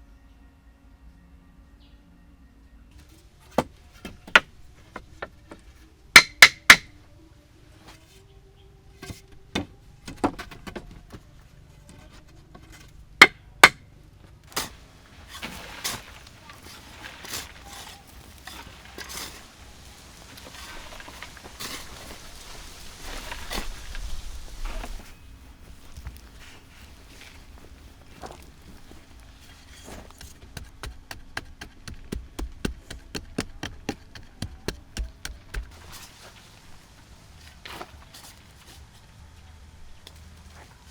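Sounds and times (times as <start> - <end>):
knocks of hard objects: 3.6 - 5.3, 6.1 - 6.9, 13.2 - 13.8, 30.0 - 35.8.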